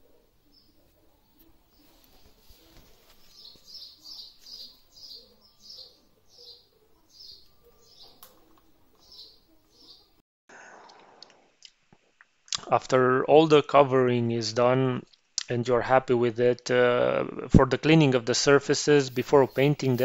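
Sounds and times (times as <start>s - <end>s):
small bird chirping: 0.0s - 10.2s, 19.1s - 20.0s.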